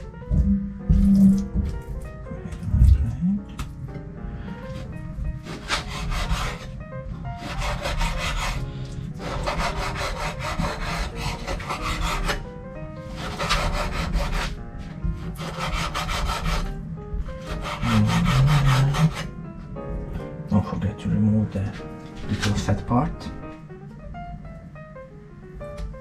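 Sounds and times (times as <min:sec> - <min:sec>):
knife sawing through raw meat: 0:04.8 - 0:06.8, 0:07.4 - 0:12.4, 0:13.1 - 0:14.6, 0:15.2 - 0:16.7, 0:17.4 - 0:19.3.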